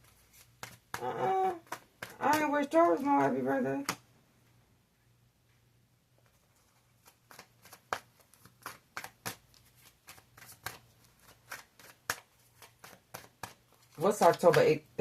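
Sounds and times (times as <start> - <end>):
cards being shuffled: 0.0 - 4.0, 6.2 - 14.9.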